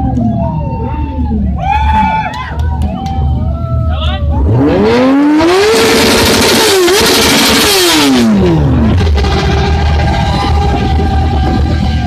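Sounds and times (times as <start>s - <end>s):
motorcycle engine revving: 4.4s - 12.0s.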